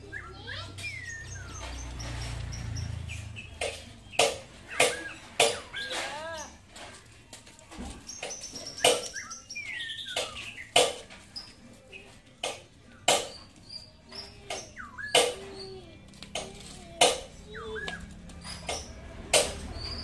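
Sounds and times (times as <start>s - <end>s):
birds chirping and whistling: 0.0s - 20.0s.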